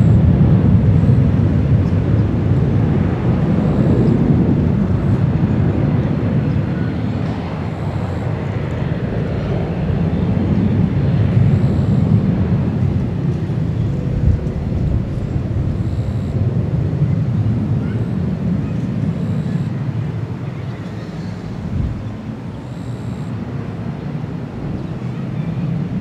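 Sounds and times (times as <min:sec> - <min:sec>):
jet airliner engines rumbling: 0:00.0 - 0:26.0.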